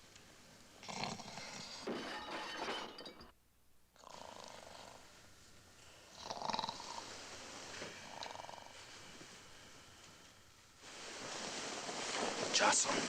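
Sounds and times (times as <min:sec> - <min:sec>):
person snoring: 0:00.8 - 0:01.8, 0:04.0 - 0:05.1, 0:06.1 - 0:07.2, 0:08.0 - 0:08.8.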